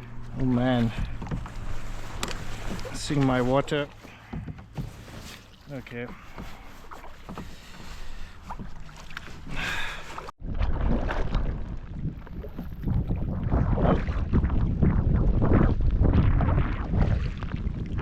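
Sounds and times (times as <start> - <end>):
paddle strokes splashing: 0.0 - 14.6
wind rumble on microphone: 10.4 - 18.0.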